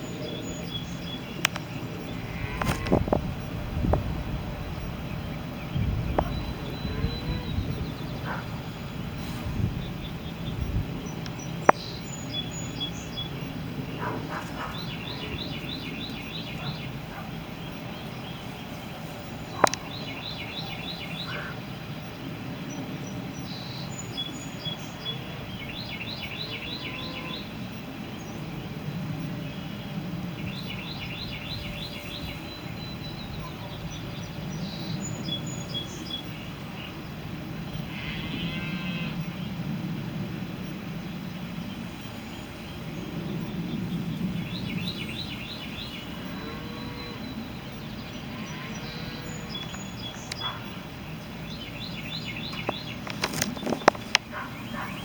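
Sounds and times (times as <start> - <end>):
songbird singing: 0.0 - 55.0
sharp clicks: 1.4 - 1.7.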